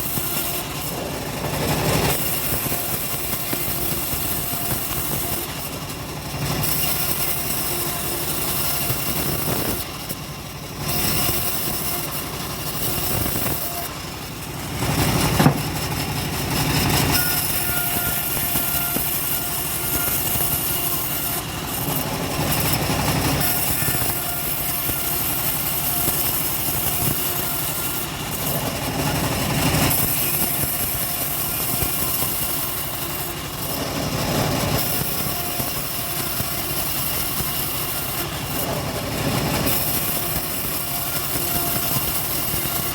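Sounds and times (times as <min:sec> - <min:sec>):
sawmill engine running: 0:00.0 - 0:42.9
sharp knock: 0:15.3 - 0:15.8.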